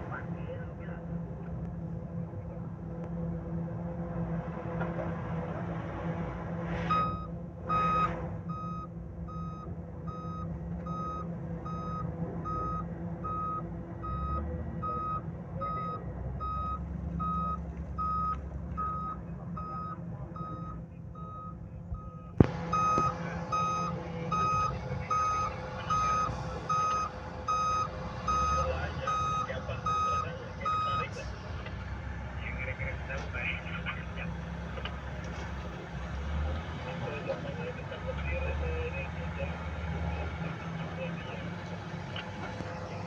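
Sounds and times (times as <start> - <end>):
diesel engine running: 0.0 - 43.0
reversing alarm beeping: 6.9 - 31.2.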